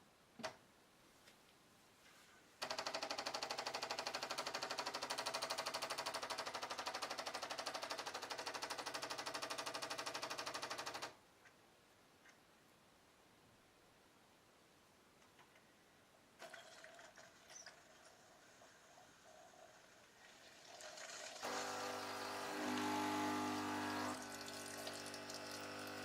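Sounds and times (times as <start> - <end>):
coffee machine pump buzzing: 21.4 - 26.0.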